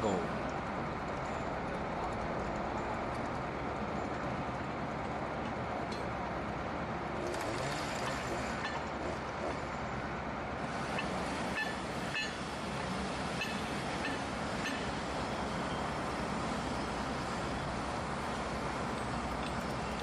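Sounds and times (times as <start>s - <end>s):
work machinery engine running: 6.5s - 20.0s.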